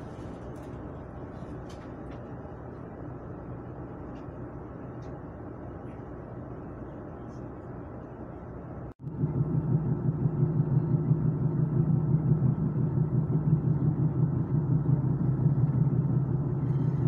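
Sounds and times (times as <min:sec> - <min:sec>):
train rumbling on track: 0:09.2 - 0:17.0.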